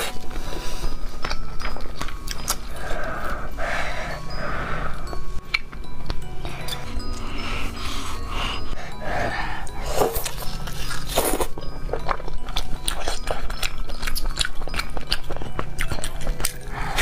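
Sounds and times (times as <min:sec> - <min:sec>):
person chewing meat: 0:10.0 - 0:17.0.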